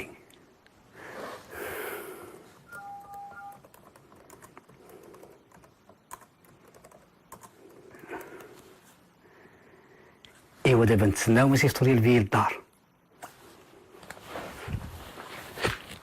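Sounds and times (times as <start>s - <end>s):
computer keyboard typing: 2.7s - 8.6s.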